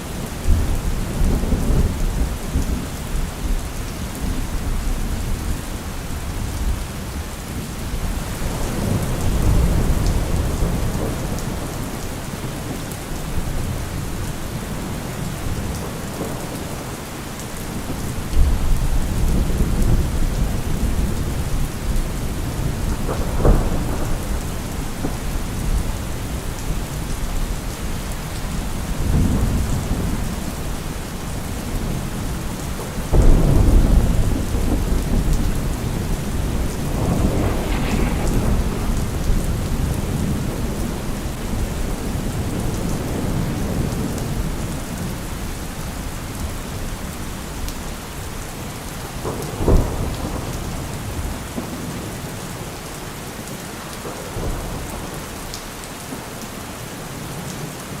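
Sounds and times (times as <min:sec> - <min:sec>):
steady rain: 0:00.0 - 0:58.0
thunder rumbling: 0:07.9 - 0:46.9
sharp thunder crack: 0:33.1 - 0:43.8.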